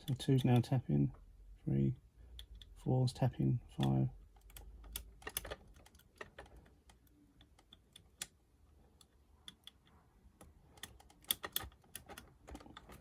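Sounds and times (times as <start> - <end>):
lock pick clicking in lock: 3.8 - 8.4, 9.0 - 13.0.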